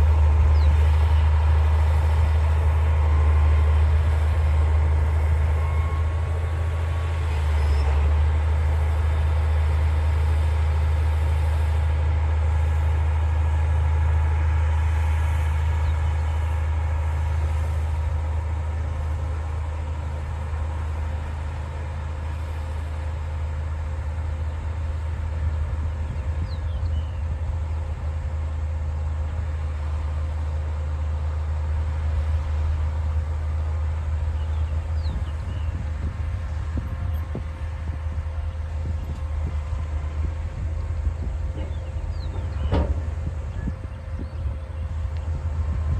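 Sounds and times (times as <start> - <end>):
bulldozer diesel engine: 0.0 - 45.9.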